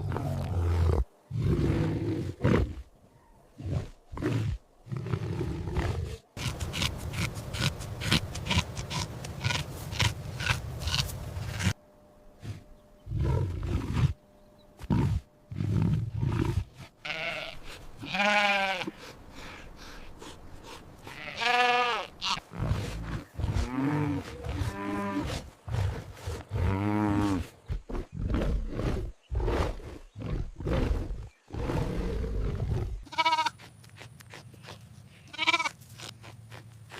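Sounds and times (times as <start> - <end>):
wavering bleating calls: 17.0 - 19.0, 21.1 - 22.5, 33.0 - 33.6, 35.3 - 35.8.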